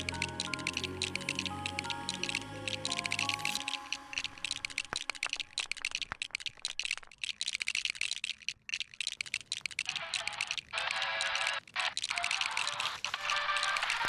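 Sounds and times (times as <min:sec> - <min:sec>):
plastic bricks clicking together: 0:02.9 - 0:14.0.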